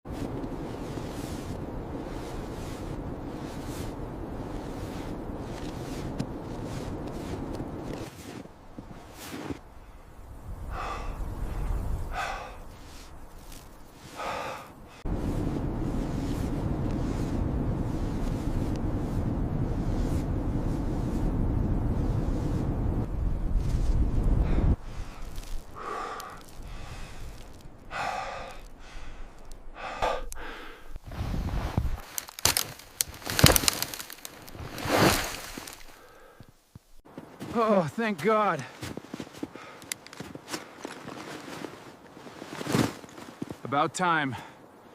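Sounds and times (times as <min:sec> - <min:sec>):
low wind rumble: 0:00.1 - 0:37.4
loud blizzard wind: 0:00.1 - 0:44.9
man gasping breaths: 0:10.6 - 0:13.1, 0:14.1 - 0:15.1, 0:24.4 - 0:31.0, 0:35.9 - 0:36.5.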